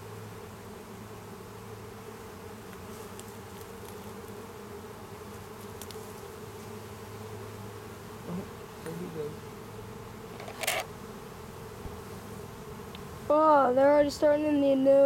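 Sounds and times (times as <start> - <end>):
bees humming: 0.0 - 15.0
faint ticks: 5.7 - 6.0, 12.9 - 13.1.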